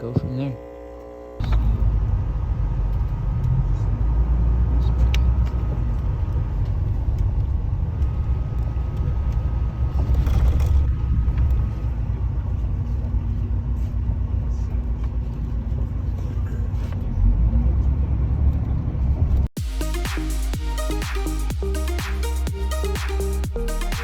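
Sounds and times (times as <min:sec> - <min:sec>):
bus engine and road rumble: 0:01.4 - 0:19.5.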